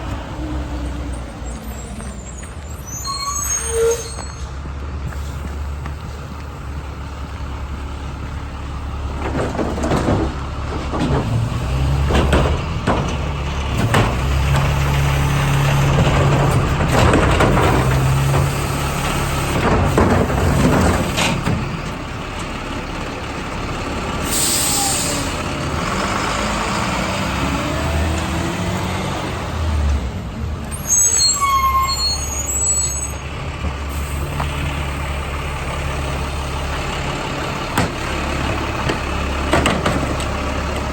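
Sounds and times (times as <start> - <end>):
high falling squeal: 1.1 - 4.6, 30.7 - 33.2
diesel engine running: 4.0 - 40.9
metal clanks and bangs: 9.2 - 15.0, 15.8 - 18.6
air brake hiss: 24.2 - 25.4.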